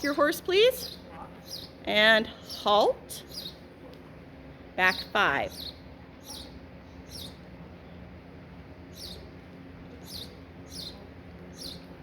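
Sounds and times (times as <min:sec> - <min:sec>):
small bird chirping: 0:00.7 - 0:03.6, 0:04.9 - 0:07.5, 0:08.9 - 0:09.4, 0:10.0 - 0:12.0.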